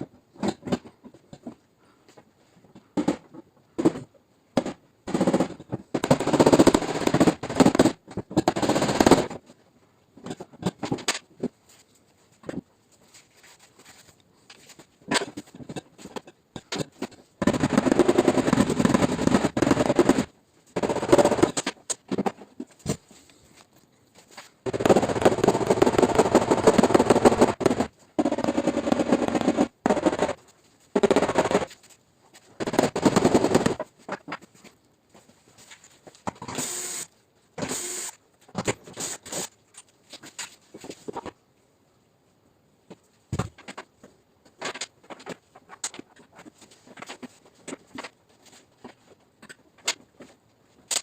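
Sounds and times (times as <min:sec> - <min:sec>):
rapid tapping on sheet metal: 0:24.7 - 0:30.4.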